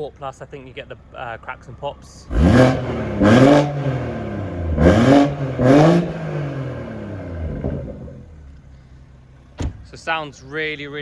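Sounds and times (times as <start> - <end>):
car engine idling: 0.0 - 11.0
car engine revving: 2.2 - 8.6.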